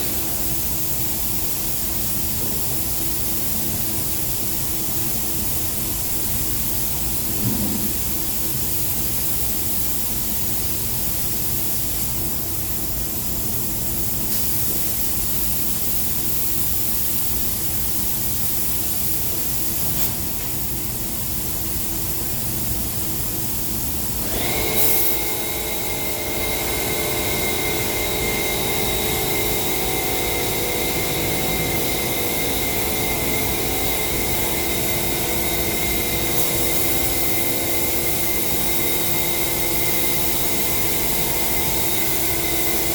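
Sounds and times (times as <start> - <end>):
spray-painting equipment hissing: 0.0 - 42.9
high steady whine: 24.2 - 42.9
machine running: 24.2 - 42.9.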